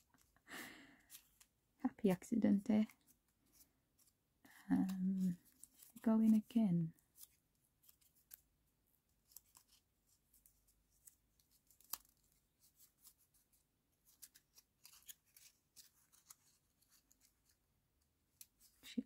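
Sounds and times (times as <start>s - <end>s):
paper rustling: 4.8s - 17.7s
scissors snipping paper: 9.1s - 13.3s, 14.0s - 17.6s.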